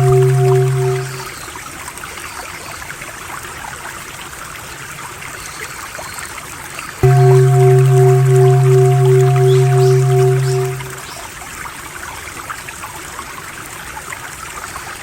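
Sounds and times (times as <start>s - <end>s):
low droning tone: 0.0s - 1.4s, 7.0s - 11.2s
stream water trickling: 0.0s - 15.0s.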